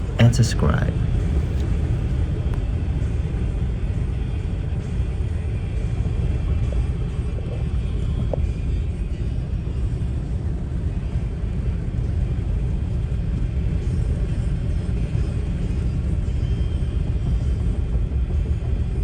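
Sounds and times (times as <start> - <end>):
vehicle engine and road noise: 0.0 - 2.6.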